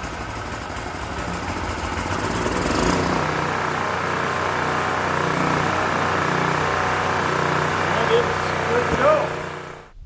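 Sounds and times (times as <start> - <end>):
portable generator engine running: 0.0 - 10.0.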